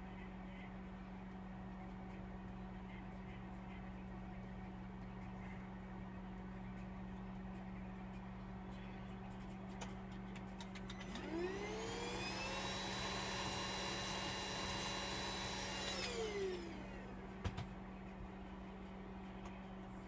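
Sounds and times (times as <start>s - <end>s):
small electric motor whining: 11.1s - 17.1s.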